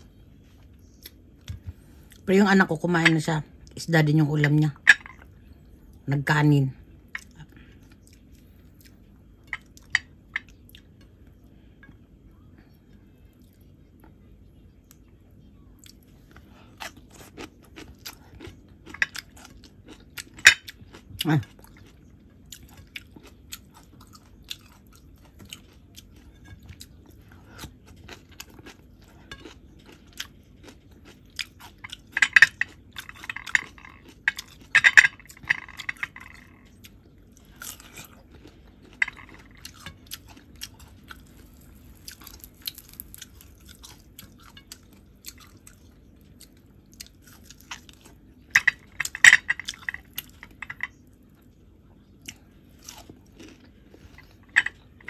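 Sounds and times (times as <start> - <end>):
person chewing food: 7.0 - 12.1, 15.8 - 55.0
crunchy bites: 37.5 - 44.0.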